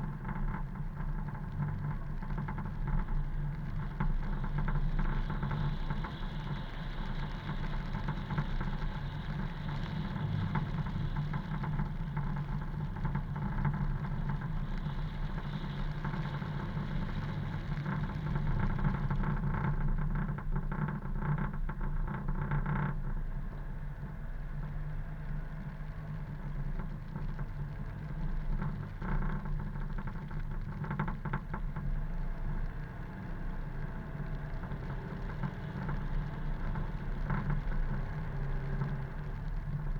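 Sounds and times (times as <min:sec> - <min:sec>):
road and tyre noise: 0:32.0 - 0:39.9.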